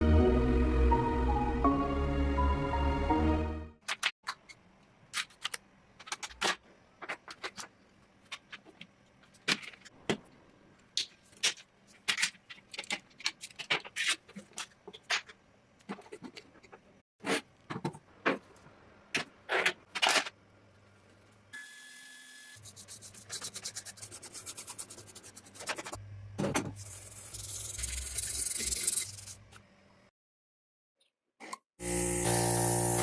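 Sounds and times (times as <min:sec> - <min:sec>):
music: 0:00.0 - 0:03.8.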